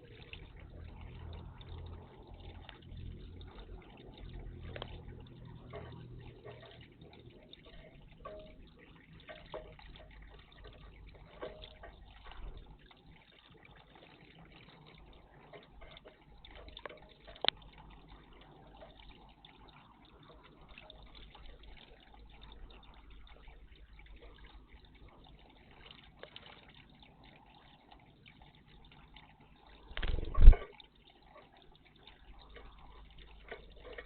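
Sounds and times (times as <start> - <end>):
water moving in bird bath: 0.0 - 34.0
small clicks: 29.9 - 30.7.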